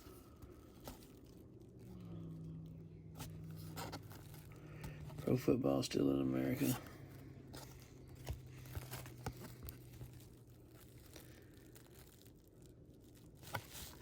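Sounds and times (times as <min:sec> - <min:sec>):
paper cards rustling: 0:03.2 - 0:12.3.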